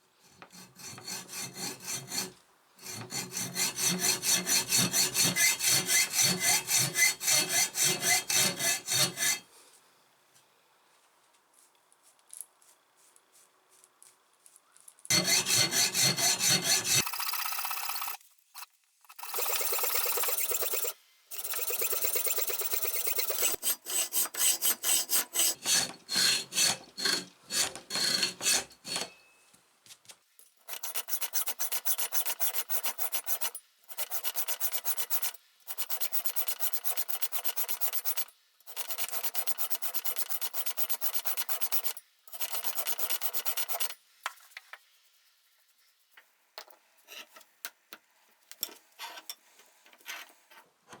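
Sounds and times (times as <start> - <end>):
hand tool scraping steel: 0.4 - 9.5, 15.1 - 29.4, 30.6 - 44.0.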